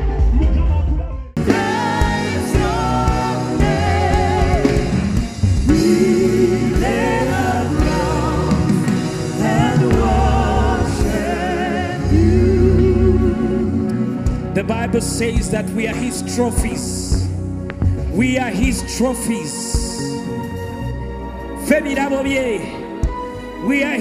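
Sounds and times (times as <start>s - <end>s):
instrumental backing music: 1.2s - 24.0s.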